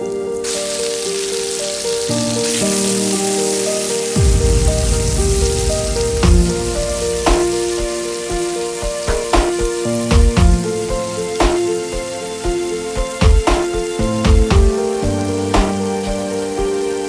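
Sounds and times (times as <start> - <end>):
background music: 0.0 - 17.0
chicken sizzling in hot oil: 0.4 - 4.2
sharp knocks: 4.3 - 7.9, 9.1 - 10.6, 11.4 - 11.7, 13.0 - 14.7, 15.6 - 15.8.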